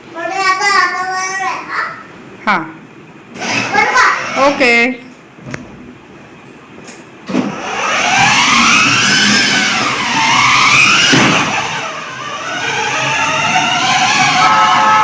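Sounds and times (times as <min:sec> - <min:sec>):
toy siren wailing: 0:12.3 - 0:15.0.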